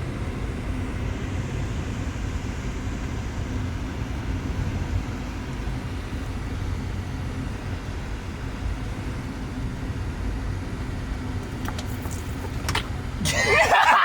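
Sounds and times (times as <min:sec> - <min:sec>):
vehicle interior rumble: 0:00.0 - 0:14.0.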